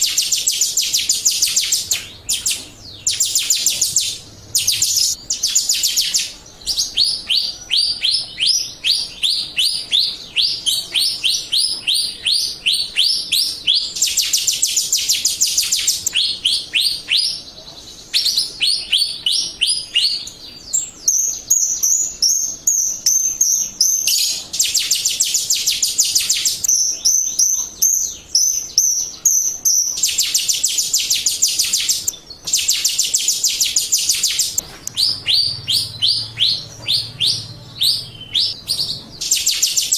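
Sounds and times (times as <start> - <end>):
sharp high bird chirps: 0.0 - 39.9
thin wavering bird whistle: 21.0 - 38.6, 39.2 - 39.9.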